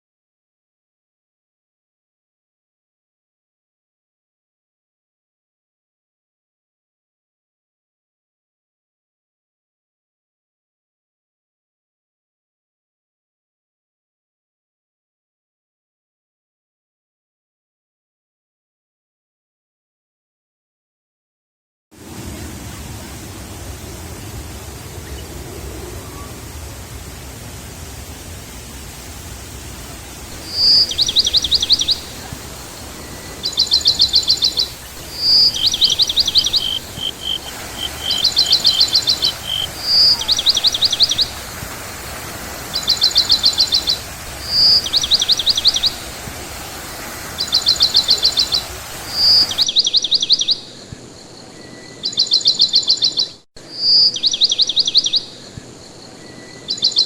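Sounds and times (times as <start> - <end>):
steady background hiss: 22.0 - 57.0
songbird singing a trill: 30.3 - 41.4, 47.4 - 57.0.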